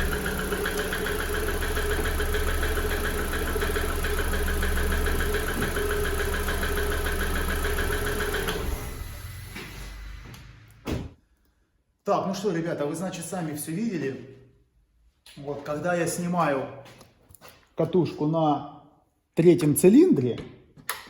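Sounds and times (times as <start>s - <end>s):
car engine idling: 0.0s - 10.8s.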